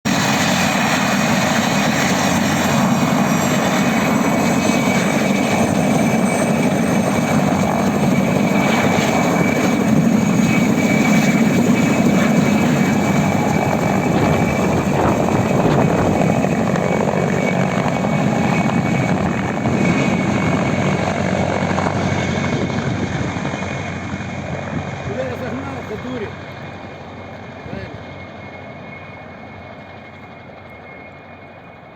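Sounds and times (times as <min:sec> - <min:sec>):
helicopter rotor noise: 0:00.1 - 0:31.9
helicopter turbine whine: 0:00.1 - 0:31.9.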